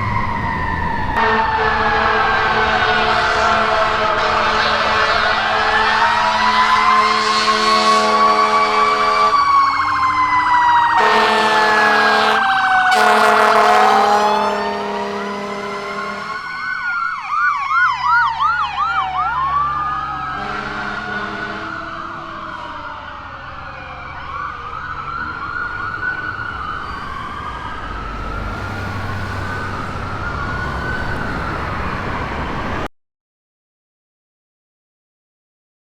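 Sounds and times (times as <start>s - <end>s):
siren yelp: 0.0s - 32.9s
sirens wailing: 0.0s - 32.9s
air horn blasts: 1.2s - 9.5s, 11.0s - 16.6s, 20.3s - 21.9s.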